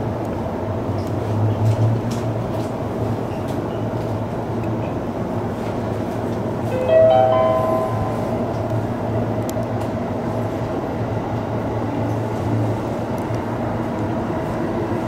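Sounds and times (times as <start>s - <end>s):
train motors and wheels rumbling: 0.0s - 15.0s
held musical tones: 6.7s - 9.1s.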